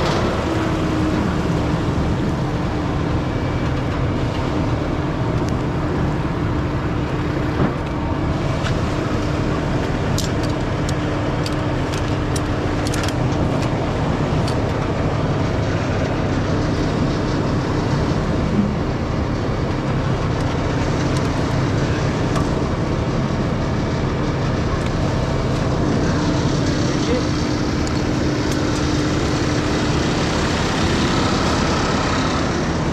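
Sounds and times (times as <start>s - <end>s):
truck diesel engine running: 0.0s - 32.9s.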